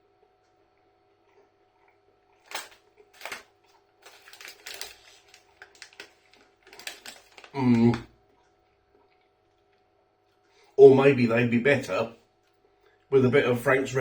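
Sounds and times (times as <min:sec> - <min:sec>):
close rustling and clicking: 0:02.4 - 0:07.6.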